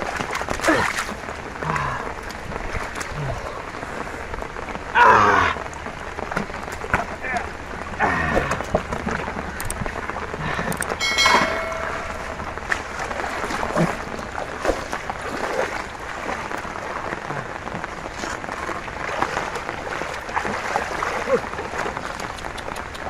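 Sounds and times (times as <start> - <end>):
rain on ground and water: 0.0 - 23.0
small water splashes: 0.0 - 23.0
sharp ringing clatter: 11.0 - 12.4.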